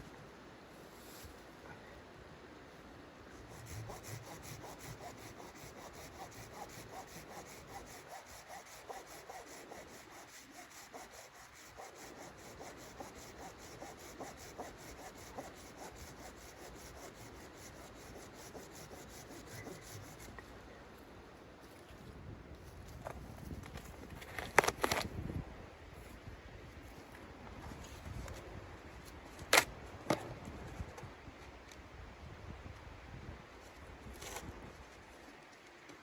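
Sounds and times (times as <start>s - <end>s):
hand saw cutting wood: 3.5s - 20.3s.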